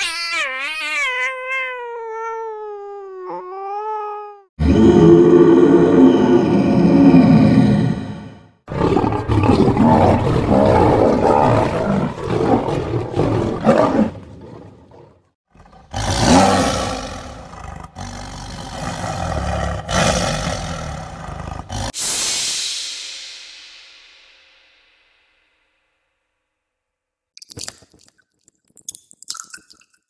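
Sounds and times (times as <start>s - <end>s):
tiger roaring and growling: 4.6s - 22.0s.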